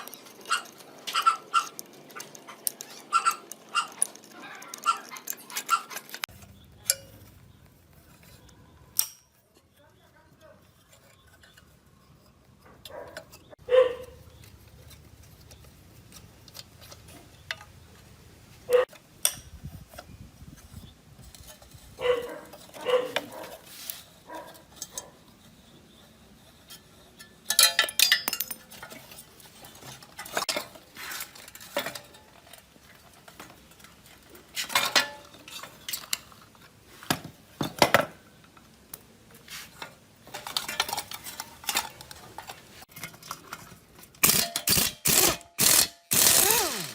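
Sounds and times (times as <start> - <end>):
metal tools clinking: 0.0 - 9.8, 10.6 - 17.9, 18.7 - 36.8, 39.6 - 46.9
scraping clatter: 19.6 - 38.0, 39.4 - 46.9.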